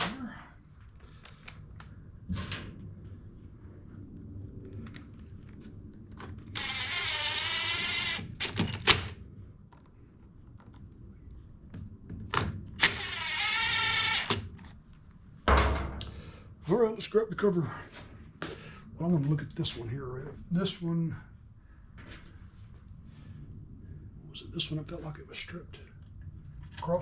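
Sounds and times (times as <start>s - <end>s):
power driver whine: 6.4s - 9.2s, 12.7s - 14.7s.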